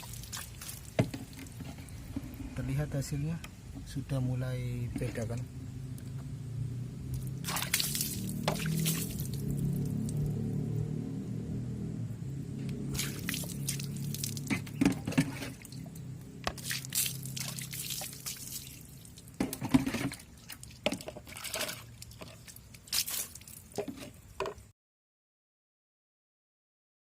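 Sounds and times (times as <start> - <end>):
water dripping and splashing: 0.0 - 2.4, 7.0 - 10.7, 12.7 - 24.7.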